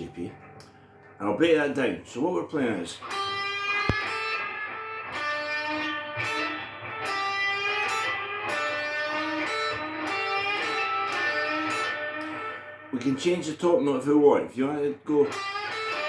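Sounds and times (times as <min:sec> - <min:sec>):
electric guitar blues lick: 0:03.0 - 0:13.4, 0:14.9 - 0:16.0
sharp click: 0:03.8 - 0:04.2.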